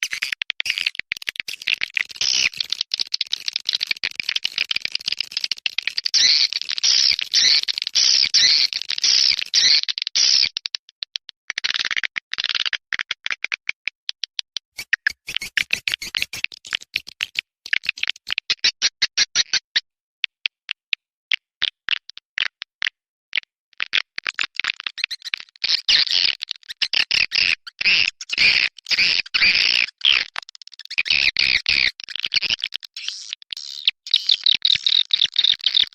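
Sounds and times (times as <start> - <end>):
birds twittering chirps: 14.8 - 17.1, 25.0 - 30.2
bird sharp clicks: 14.8 - 18.3.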